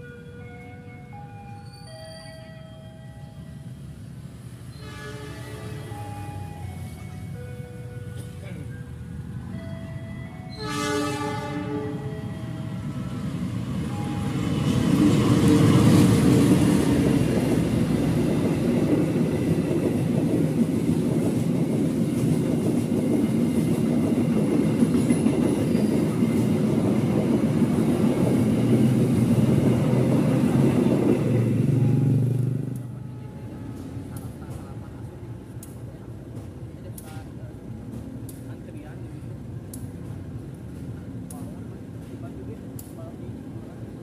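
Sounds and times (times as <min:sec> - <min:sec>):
train wheels rumbling on rail: 0:00.0 - 0:44.0
train horn chord: 0:04.7 - 0:06.6, 0:10.5 - 0:12.6.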